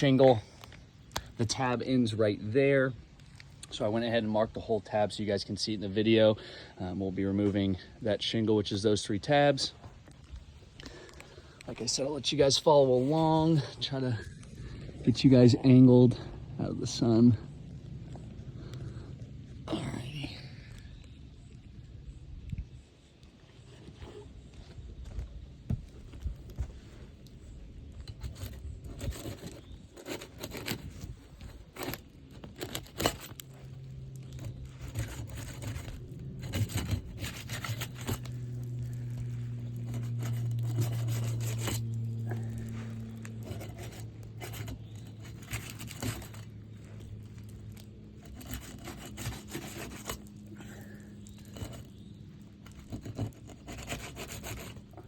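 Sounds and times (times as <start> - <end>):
low hum: 9.8 - 55.0
tool scraping roof shingles: 27.6 - 55.0.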